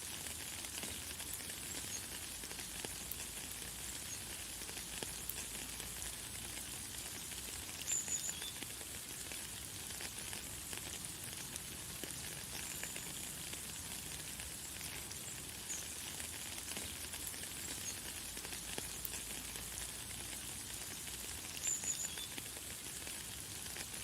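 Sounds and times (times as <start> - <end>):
light rain pattering: 0.0 - 24.0.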